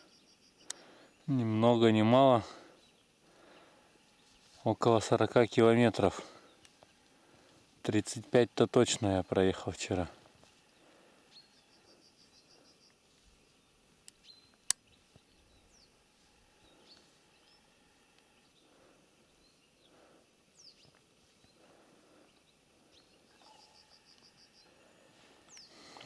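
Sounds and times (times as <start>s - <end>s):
songbird trill: 0.0s - 7.5s, 10.6s - 26.0s
background hiss: 0.0s - 26.0s
high bird chirps: 23.0s - 24.7s.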